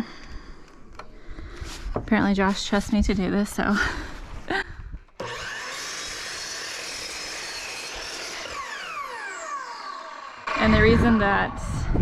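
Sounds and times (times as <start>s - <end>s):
miter saw cutting board: 5.2s - 11.6s
saw motor winding down: 5.2s - 12.0s.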